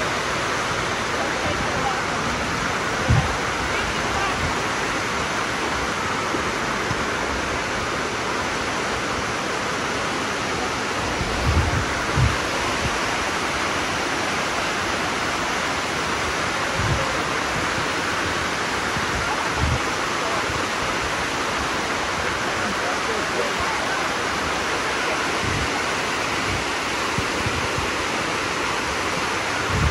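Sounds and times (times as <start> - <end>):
water rushing down rocks: 0.0 - 29.9
dull low thumps: 3.0 - 3.6, 11.2 - 13.0.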